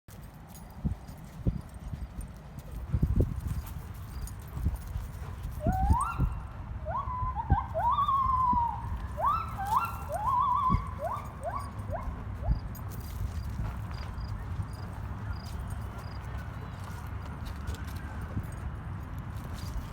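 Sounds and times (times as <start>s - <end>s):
animal squealing calls: 5.7s - 12.2s.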